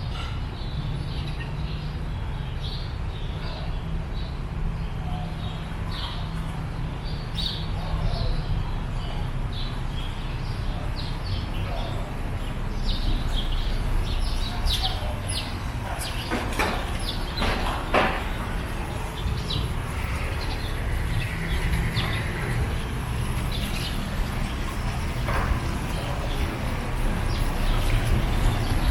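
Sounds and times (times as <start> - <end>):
small birds chirping: 0.0 - 28.9
steady low rumble: 16.9 - 28.9.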